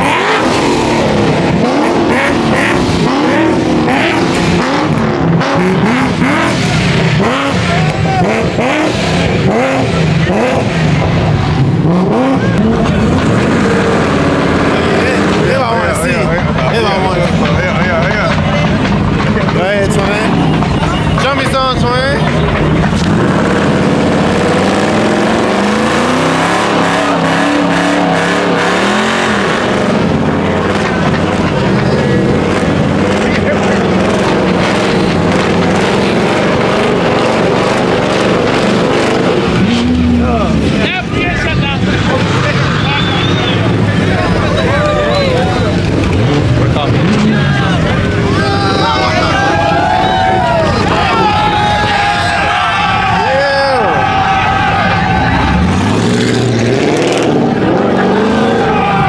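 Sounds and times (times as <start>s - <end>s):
car engine revving: 0.0s - 59.0s
tyre squeal: 42.4s - 45.8s.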